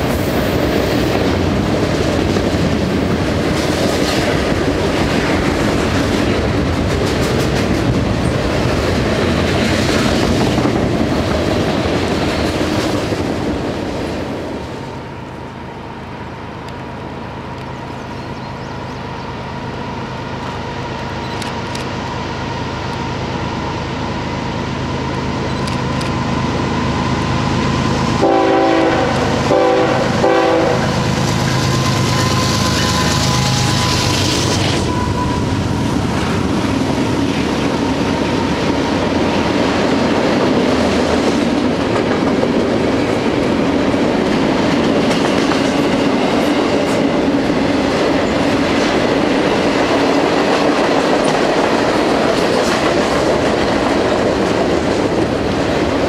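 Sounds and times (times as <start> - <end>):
diesel locomotive engines droning: 0.0 - 56.0
freight cars rumbling on rails: 0.0 - 56.0
locomotive horn blasts: 28.2 - 35.9.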